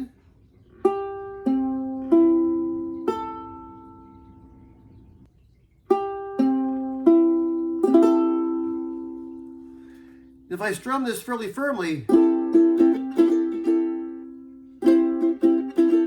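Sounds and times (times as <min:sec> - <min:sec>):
ukulele notes plucked: 0:00.8 - 0:04.6, 0:05.9 - 0:09.8, 0:12.1 - 0:16.0.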